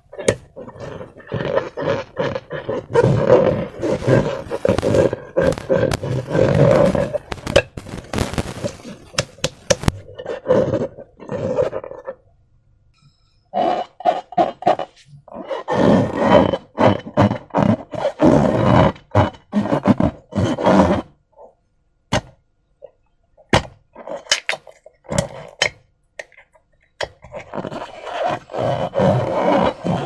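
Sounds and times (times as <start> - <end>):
slime squelching: 0.0 - 12.2, 22.1 - 30.0
sharp clicks and pops: 2.9 - 10.1, 23.4 - 27.8.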